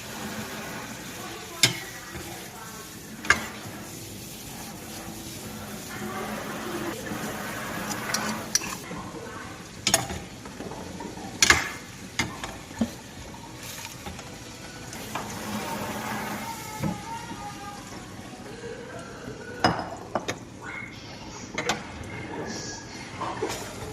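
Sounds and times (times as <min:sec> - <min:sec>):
food sizzling in a frying pan: 0:00.0 - 0:23.9.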